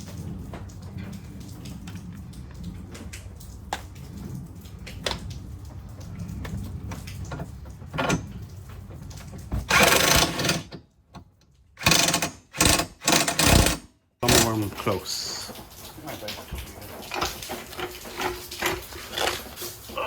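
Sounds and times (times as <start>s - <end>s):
light clicks and knocks: 0.0s - 14.9s
handheld power tool running: 9.7s - 10.8s, 11.8s - 14.5s.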